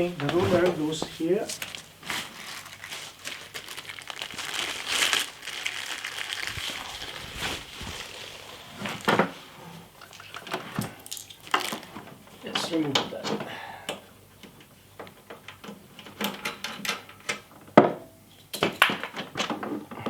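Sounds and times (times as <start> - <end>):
packaging crinkling: 0.2 - 12.1.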